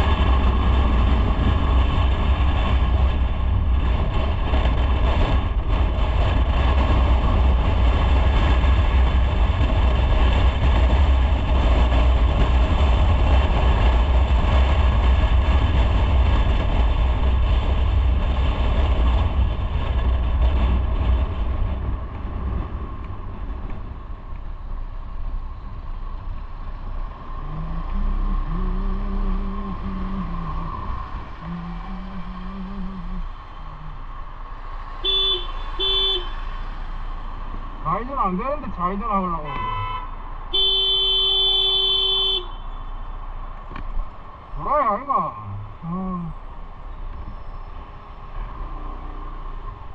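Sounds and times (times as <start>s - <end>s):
wind noise: 0.0s - 49.9s
motorcycle engine: 26.6s - 37.9s.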